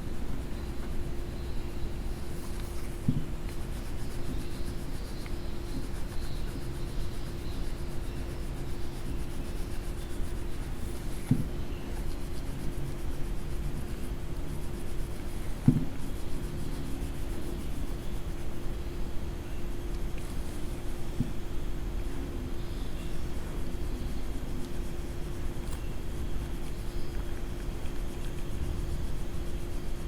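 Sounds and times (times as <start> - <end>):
faint steady hum: 0.0 - 30.0
coloring tool rubbing on paper: 0.3 - 19.0, 22.7 - 30.0.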